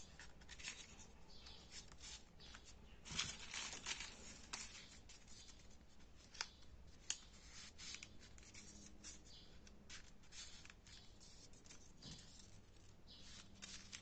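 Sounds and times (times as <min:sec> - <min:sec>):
paper rustling: 0:00.0 - 0:14.0
paper pieces clicking: 0:13.2 - 0:14.0.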